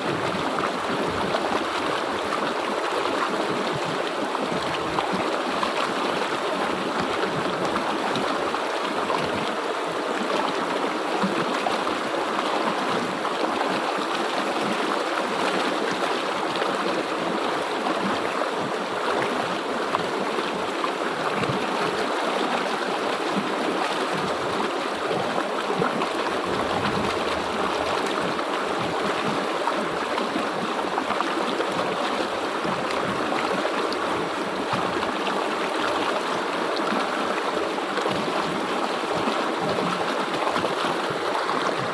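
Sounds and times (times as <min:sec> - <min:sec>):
river water flowing over rocks: 0:00.0 - 0:41.9.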